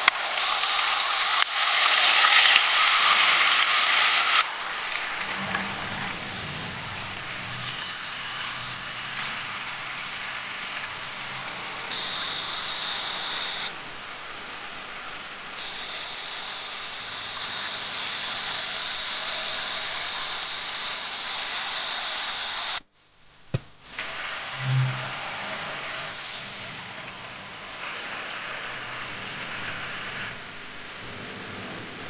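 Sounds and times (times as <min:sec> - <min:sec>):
food sizzling over campfire: 0:00.0 - 0:22.8.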